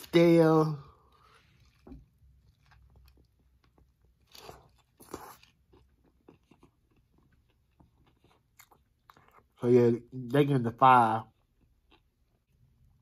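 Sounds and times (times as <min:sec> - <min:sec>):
person chewing food: 0:01.0 - 0:09.6, 0:11.3 - 0:13.0.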